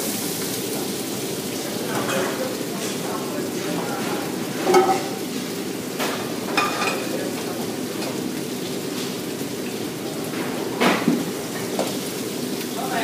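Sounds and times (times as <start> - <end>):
food sizzling in woks: 0.0 - 13.0
metal pans and utensils clanking: 1.9 - 8.2.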